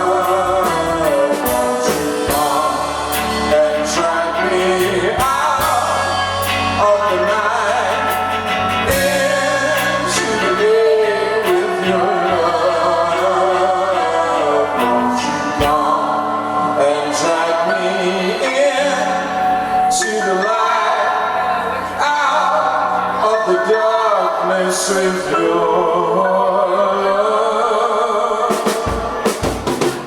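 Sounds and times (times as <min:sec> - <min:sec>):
rock band playing: 0:00.0 - 0:19.9, 0:28.5 - 0:30.0.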